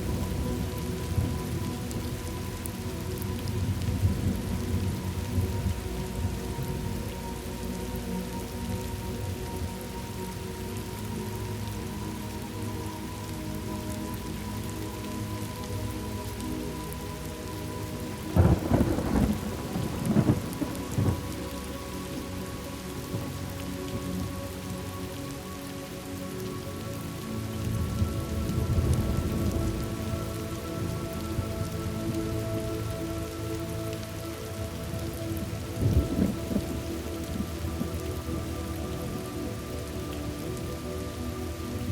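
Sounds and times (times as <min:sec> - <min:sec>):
steady rain: 0:00.0 - 0:41.9
thunder cracks and rolls: 0:18.4 - 0:21.2.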